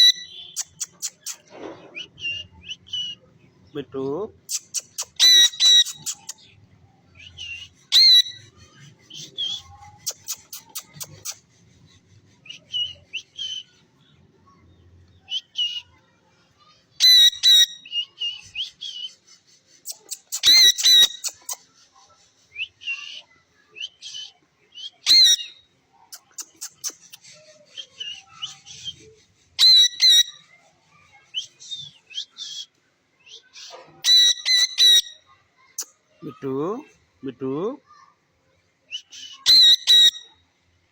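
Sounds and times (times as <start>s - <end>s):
parrot squawking and whistling: 0.0s - 3.2s, 4.5s - 6.4s, 7.4s - 11.5s, 17.0s - 19.1s, 19.8s - 21.6s, 25.0s - 29.0s, 29.6s - 30.4s, 34.0s - 35.2s, 38.9s - 40.3s.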